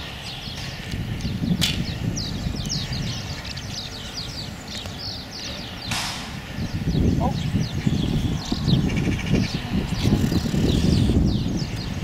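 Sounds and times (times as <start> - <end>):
small birds chirping: 0.0 - 12.0
wind rumble on microphone: 0.0 - 12.0
sharp click: 5.9 - 6.3.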